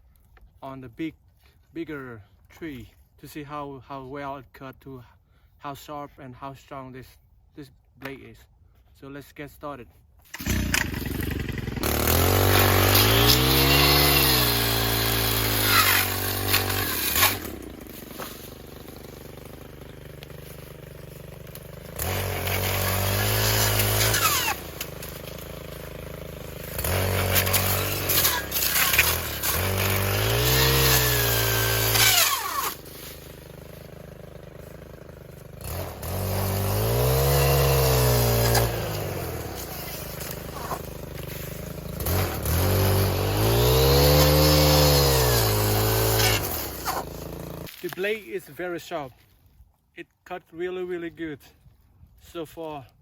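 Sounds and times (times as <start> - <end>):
brush cutter engine revving: 10.2 - 48.1
blade cutting into tree: 10.3 - 48.2.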